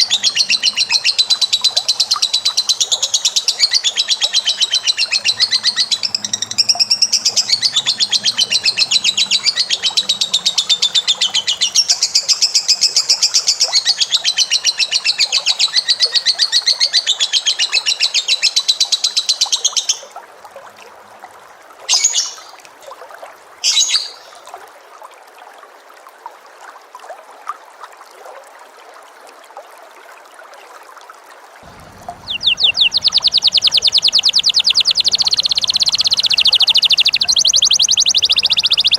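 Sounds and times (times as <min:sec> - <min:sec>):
bird's fast rattling trill: 0:31.7 - 0:38.9
short bird chirps: 0:31.8 - 0:38.9.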